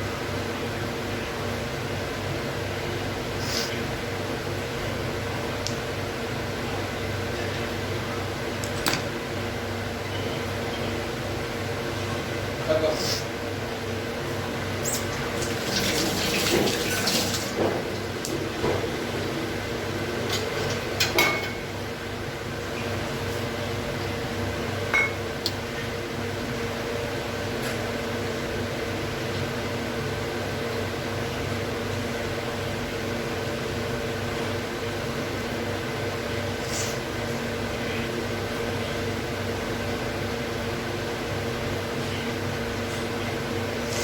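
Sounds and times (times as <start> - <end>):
appliance humming: 0.0 - 44.0
water running and splashing: 15.2 - 17.6.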